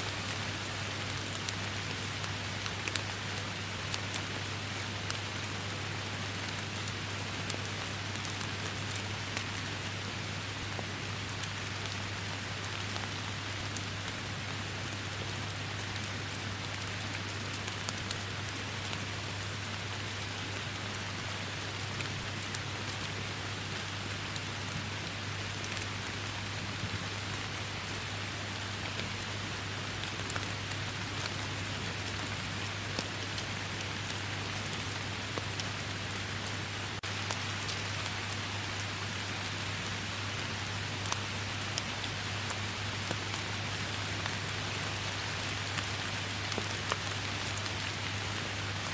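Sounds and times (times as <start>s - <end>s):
raindrops ticking: 28.6s - 48.9s.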